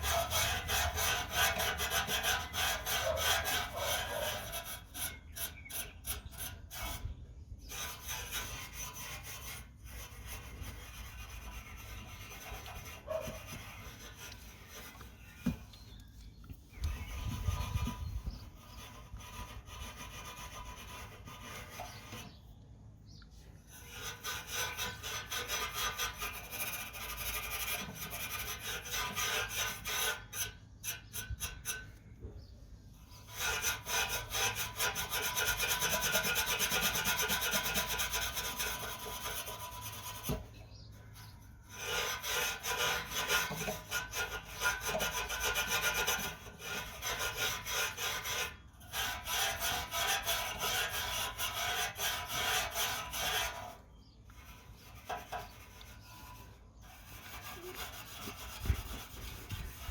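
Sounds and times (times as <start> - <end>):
wire wool scrubbing metal: 0.0 - 7.0, 23.7 - 31.9, 33.2 - 59.9.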